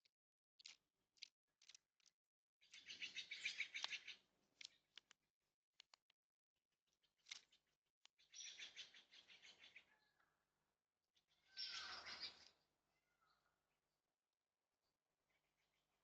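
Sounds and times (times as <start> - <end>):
sharp clicks: 5.8 - 6.2
rattling bird calls: 11.5 - 12.5.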